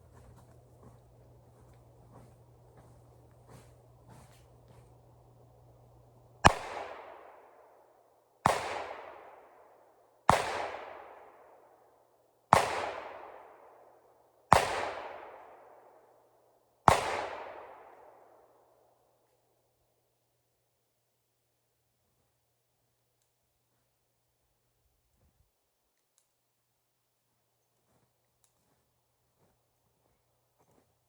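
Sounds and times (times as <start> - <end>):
gunshots echoing: 6.3 - 7.8, 8.4 - 9.7, 10.3 - 11.5, 12.5 - 13.8, 14.5 - 15.7, 16.9 - 18.2.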